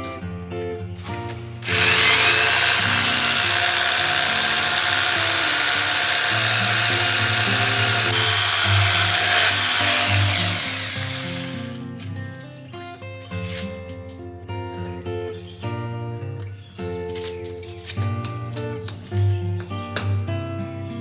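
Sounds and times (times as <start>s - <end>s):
handheld power tool running: 1.6s - 11.8s.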